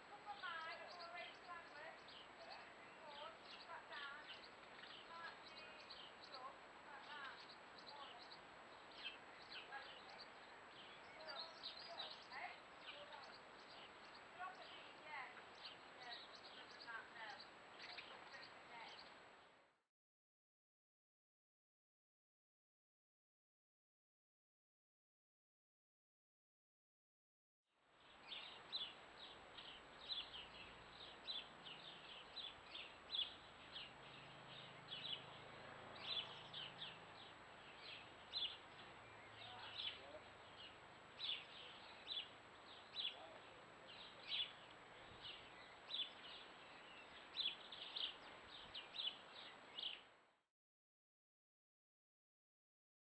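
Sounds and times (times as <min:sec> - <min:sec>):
small birds chirping: 0:00.0 - 0:19.7, 0:27.9 - 0:50.3
background hiss: 0:00.0 - 0:19.8, 0:27.8 - 0:50.4.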